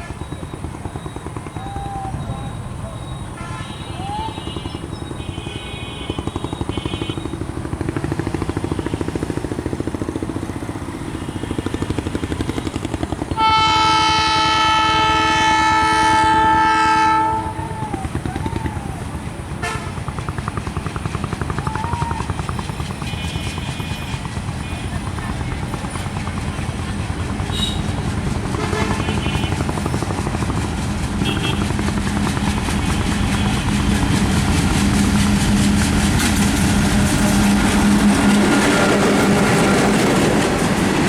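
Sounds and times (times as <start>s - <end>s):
diesel locomotive engine throbbing: 0.0s - 41.0s
locomotive air horn blast: 3.2s - 7.4s, 11.1s - 20.2s, 22.3s - 25.1s, 27.4s - 30.3s, 31.0s - 40.5s.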